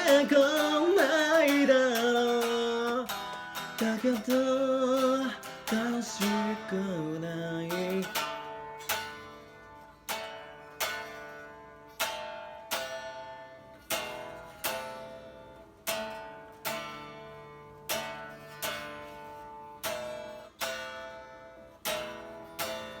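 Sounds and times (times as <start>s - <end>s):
guitar strumming chords: 0.0s - 23.0s.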